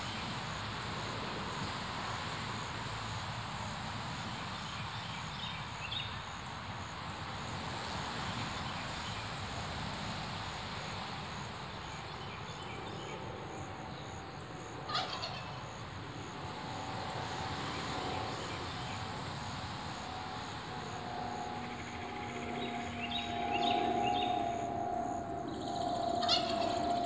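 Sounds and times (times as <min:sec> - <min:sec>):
faint steady hum: 0:00.0 - 0:27.0
faint high pulsing buzz: 0:04.4 - 0:27.0
bird calling: 0:14.8 - 0:15.7, 0:21.0 - 0:27.0.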